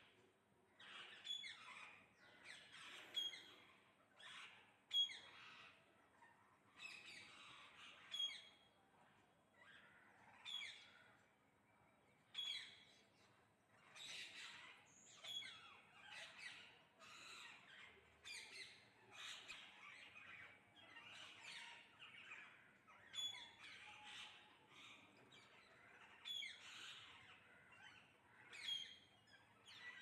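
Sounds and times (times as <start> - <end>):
parrots calling: 0.8 - 5.8, 13.7 - 30.0.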